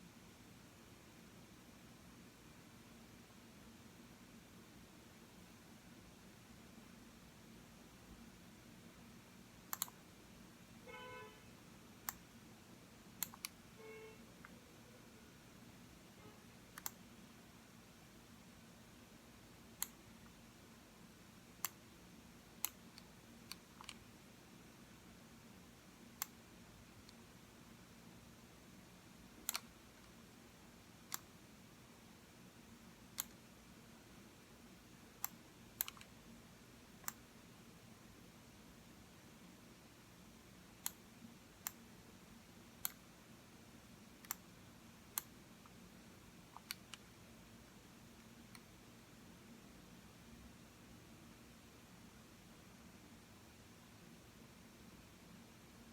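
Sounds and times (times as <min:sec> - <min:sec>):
computer mouse clicks: 0:09.7 - 0:10.0, 0:12.0 - 0:12.2, 0:13.2 - 0:13.6, 0:16.7 - 0:17.0, 0:19.8 - 0:20.4, 0:21.6 - 0:21.8, 0:22.6 - 0:24.0, 0:26.2 - 0:26.4, 0:29.4 - 0:30.2, 0:31.0 - 0:31.3, 0:33.1 - 0:33.4, 0:35.2 - 0:36.2, 0:37.0 - 0:37.2, 0:40.8 - 0:41.0, 0:41.6 - 0:41.9, 0:42.8 - 0:43.1, 0:44.2 - 0:44.5, 0:45.1 - 0:45.8, 0:46.5 - 0:47.1, 0:48.2 - 0:48.7
mouse button clicks: 0:09.7 - 0:10.0.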